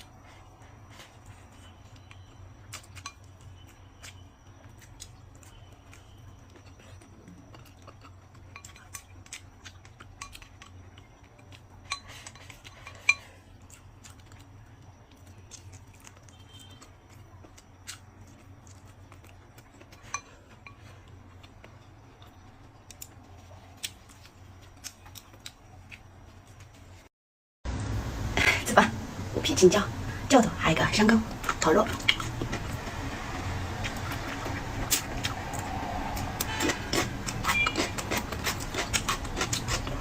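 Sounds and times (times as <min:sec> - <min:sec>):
utensils clinking against dishes: 0:11.8 - 0:13.4
steady low hum: 0:27.7 - 0:40.0.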